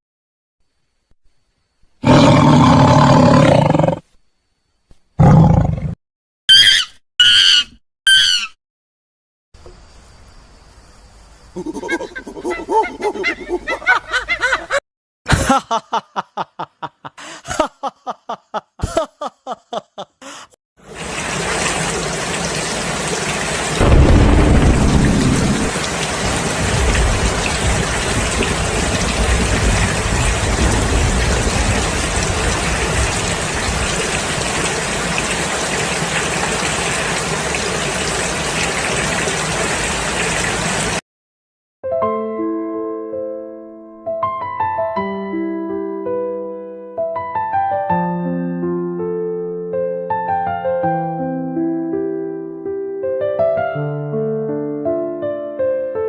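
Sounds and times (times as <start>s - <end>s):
short pitched calls: 6.5s - 8.6s
heavy rain: 20.8s - 41.0s
thunder rumbling: 23.7s - 34.6s.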